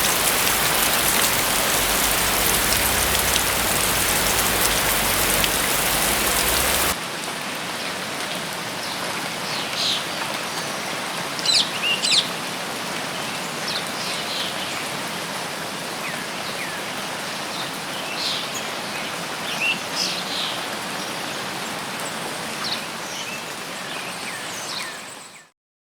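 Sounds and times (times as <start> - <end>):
small birds chirping: 0.0 - 7.0
rain: 0.0 - 25.5.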